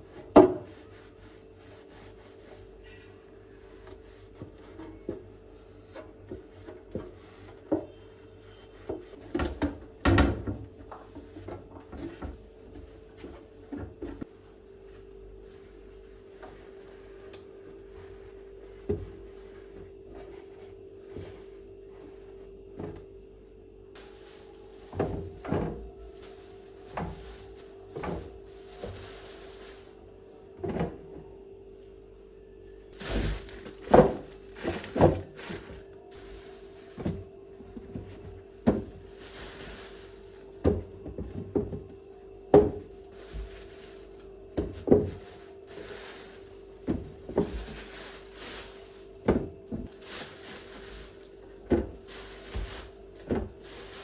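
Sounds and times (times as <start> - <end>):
steady hum: 0.0 - 54.0
packaging rustling: 33.0 - 37.0, 43.0 - 49.2, 49.8 - 54.0.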